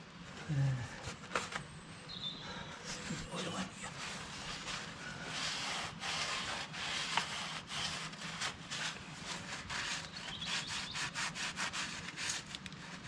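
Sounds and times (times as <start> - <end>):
hands rubbing and scraping hoses: 3.0 - 13.0.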